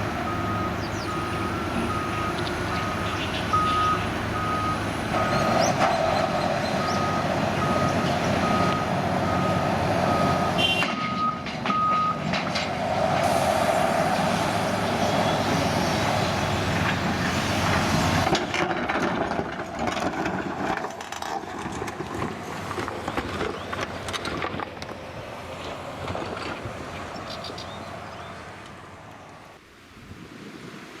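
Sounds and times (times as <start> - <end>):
vehicle engine running: 0.0 - 10.8
reversing alarm beeping: 0.1 - 12.2.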